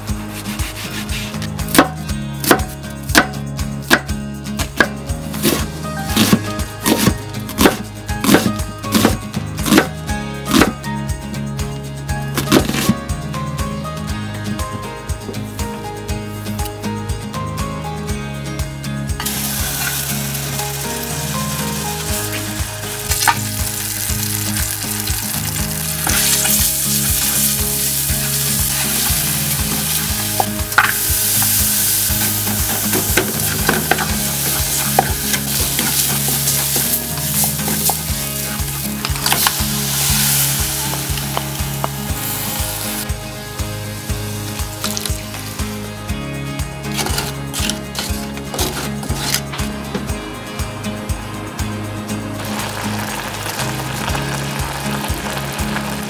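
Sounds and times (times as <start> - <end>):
background music with steady beat: 0.0 - 56.0
food sizzling in a frying pan: 19.2 - 43.1, 52.4 - 56.0.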